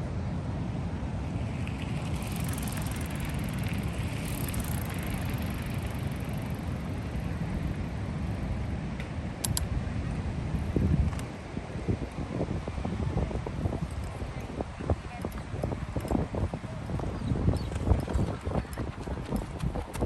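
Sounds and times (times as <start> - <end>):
wind buffeting microphone: 0.9 - 20.0
sharp clicks: 9.0 - 9.7.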